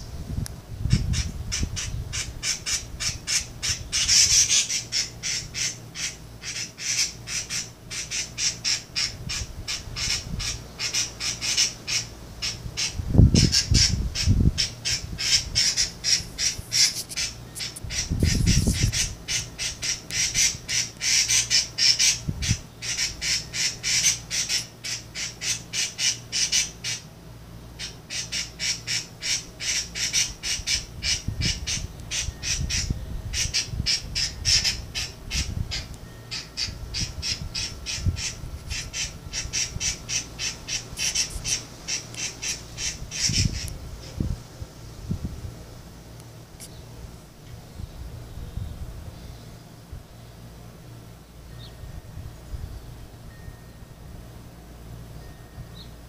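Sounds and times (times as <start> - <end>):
birds chirping: 0.9 - 27.1, 27.7 - 44.3.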